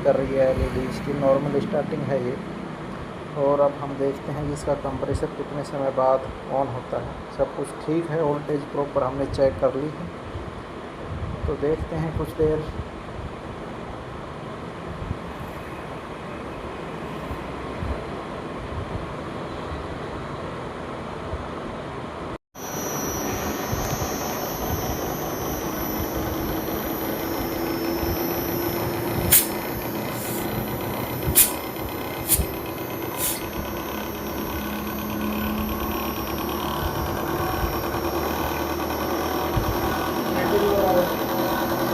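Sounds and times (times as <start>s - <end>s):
air conditioner humming: 22.6s - 41.9s.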